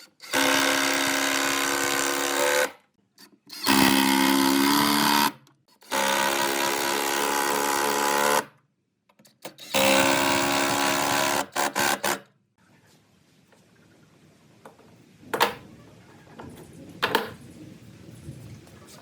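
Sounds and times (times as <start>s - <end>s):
small electric power tool motor: 0.0s - 2.8s, 3.5s - 8.5s, 9.6s - 12.2s.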